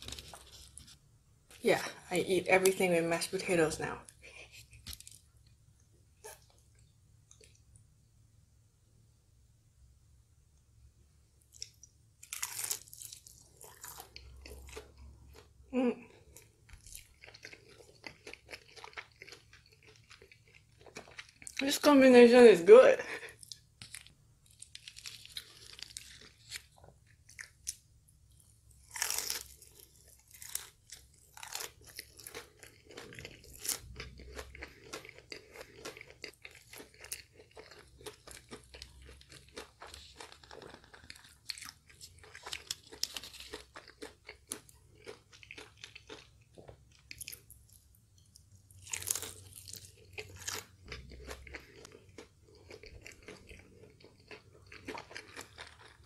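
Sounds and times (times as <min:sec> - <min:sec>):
crunching fried chicken: 0:00.0 - 0:01.0, 0:11.5 - 0:21.7, 0:23.5 - 0:56.0.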